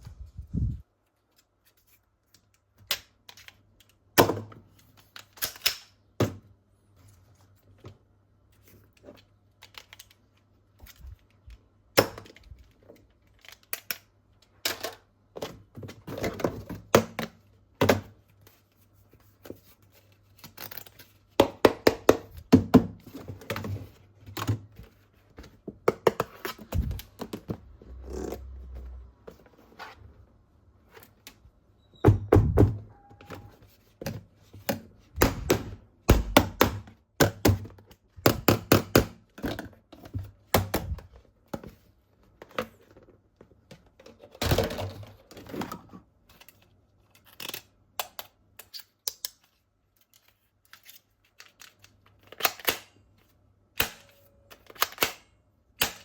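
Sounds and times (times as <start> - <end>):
plastic toy parts knocking and clicking: 21.4 - 24.7, 34.0 - 41.8.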